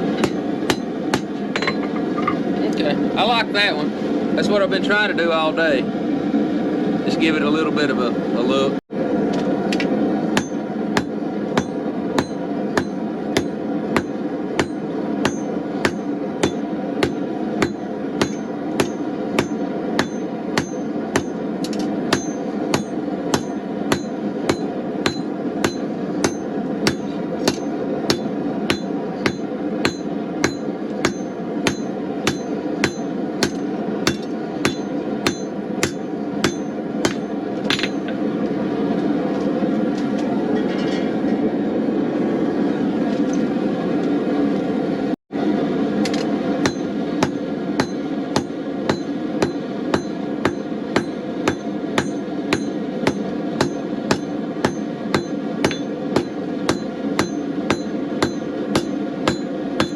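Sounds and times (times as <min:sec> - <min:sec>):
hammer striking steel on anvil: 0:00.0 - 0:02.4, 0:10.3 - 0:38.2, 0:46.1 - 0:59.9
gas forge burner roaring: 0:00.0 - 0:59.9.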